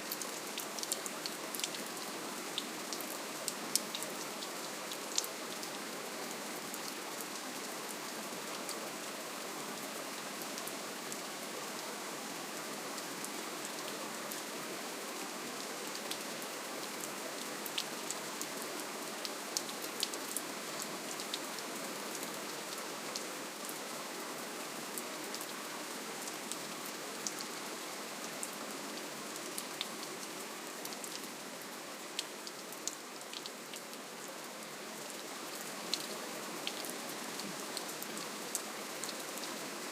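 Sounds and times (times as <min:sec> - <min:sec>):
raindrops ticking on a surface: 0:00.1 - 0:05.8.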